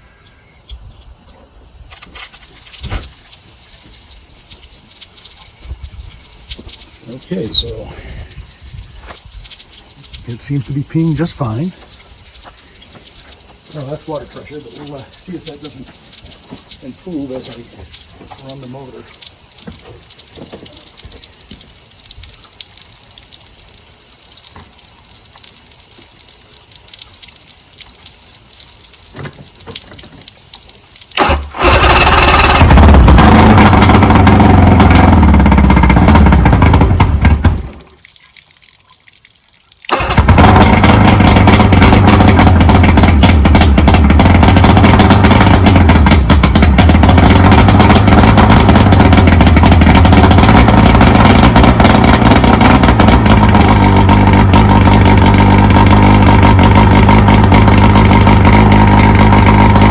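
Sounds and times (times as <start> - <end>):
water hissing from hose: 0.0 - 59.9
outboard motor running: 2.8 - 21.4, 31.2 - 37.9, 39.9 - 59.9.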